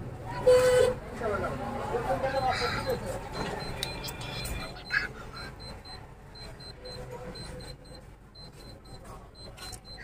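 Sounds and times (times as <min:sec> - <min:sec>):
high-pitched electronic beeps: 0:02.3 - 0:10.0.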